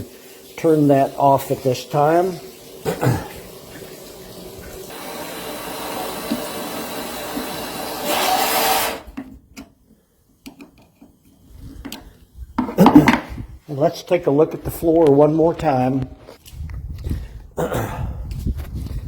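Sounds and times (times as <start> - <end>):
water rushing from a hose: 0.0 - 9.1.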